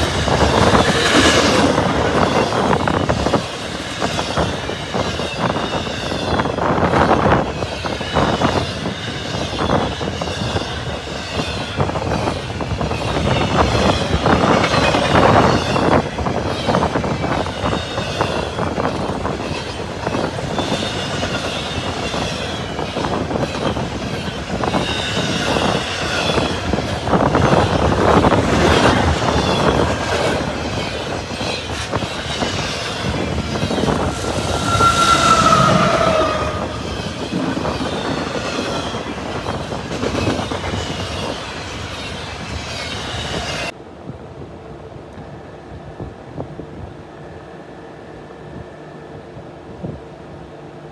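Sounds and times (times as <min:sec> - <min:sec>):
freight train rumbling past: 0:00.0 - 0:43.8
wheel squeal: 0:16.6 - 0:43.7.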